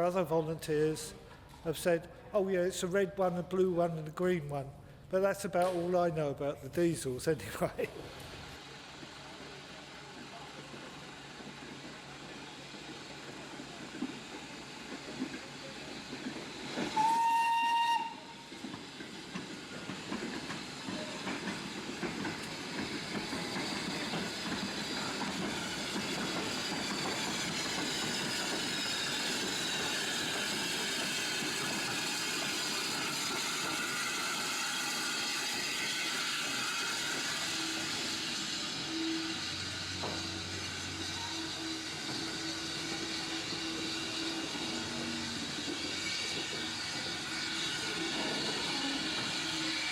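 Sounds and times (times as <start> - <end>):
train running with rail clatter: 7.4 - 49.9
train whistle: 16.9 - 18.5, 33.8 - 45.2, 47.7 - 49.9.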